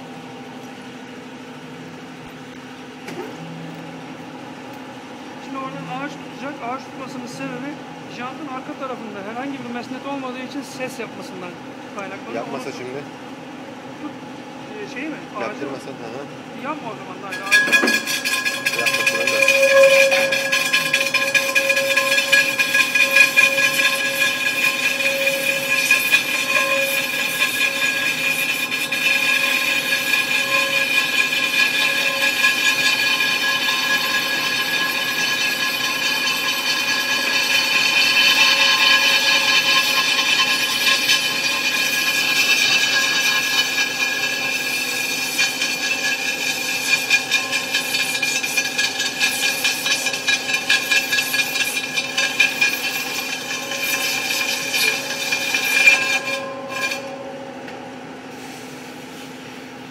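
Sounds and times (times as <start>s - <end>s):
wheel rim ringing whine: 0.0s - 59.9s
lathe tool cutting noise: 17.3s - 57.2s.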